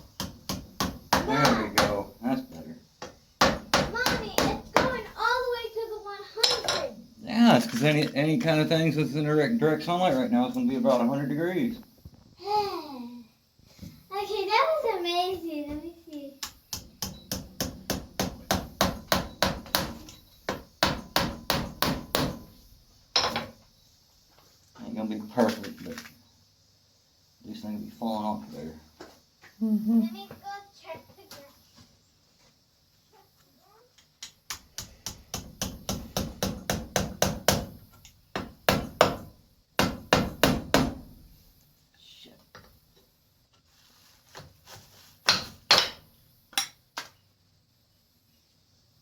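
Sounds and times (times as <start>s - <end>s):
hammer tapping nails: 16.4s - 22.5s, 34.2s - 41.0s.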